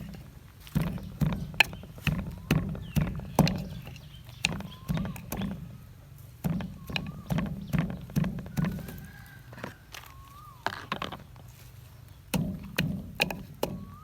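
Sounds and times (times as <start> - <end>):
pestle pounding in a mortar: 0.0 - 5.8, 6.4 - 9.2, 12.3 - 14.0.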